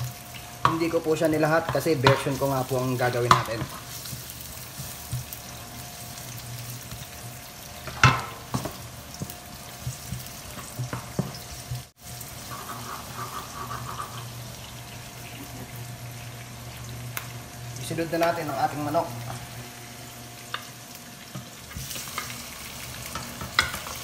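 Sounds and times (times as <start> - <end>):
onion and garlic sizzling in oil: 0.0 - 24.0
wooden spatula scraping a wok: 9.8 - 14.3.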